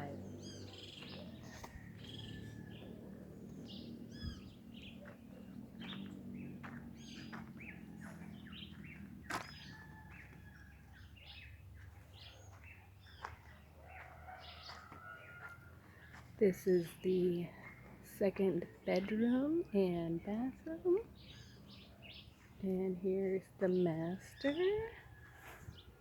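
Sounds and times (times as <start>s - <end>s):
faint low rumble: 0.0s - 10.3s
birds chirping: 0.0s - 25.1s.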